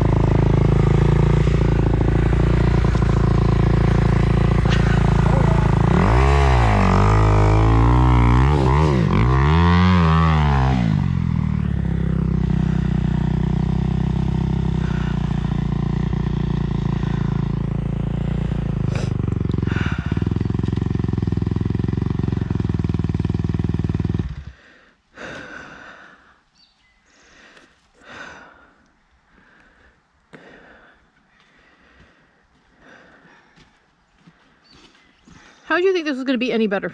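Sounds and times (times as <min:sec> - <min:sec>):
dirt bike engine revving and idling: 0:00.0 - 0:26.3.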